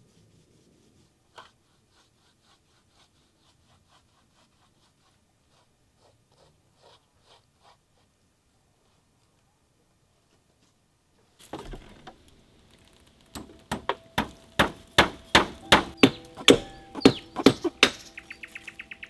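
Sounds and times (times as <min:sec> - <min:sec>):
quick ticking: 0:11.4 - 0:19.0
single knock: 0:11.5 - 0:12.2, 0:13.4 - 0:18.4
sharp hard strikes: 0:13.4 - 0:18.5.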